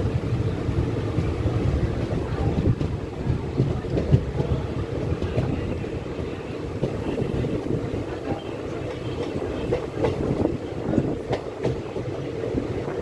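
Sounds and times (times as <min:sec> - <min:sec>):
moving vehicle rumble and rattle: 0:00.0 - 0:13.0.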